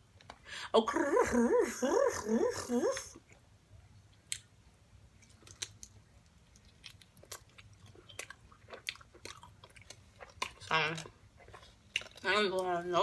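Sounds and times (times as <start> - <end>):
chewing food: 5.1 - 12.9.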